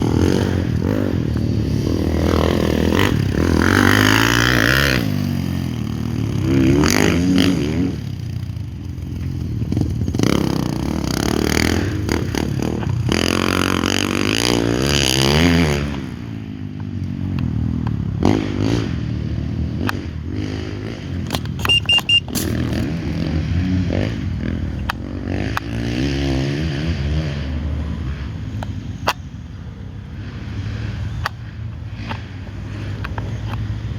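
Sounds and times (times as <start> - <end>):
dirt bike engines revving: 0.0 - 33.9
sharp clicks and knocks: 21.2 - 22.9, 31.2 - 33.9.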